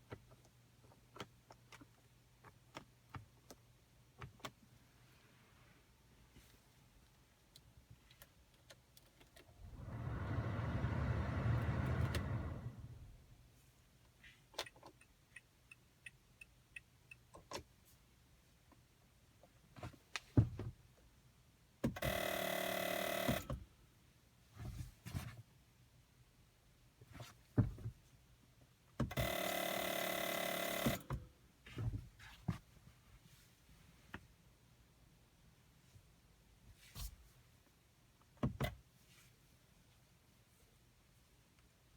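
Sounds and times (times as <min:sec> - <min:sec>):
car warning buzzer: 0:22.0 - 0:23.5, 0:29.1 - 0:31.1.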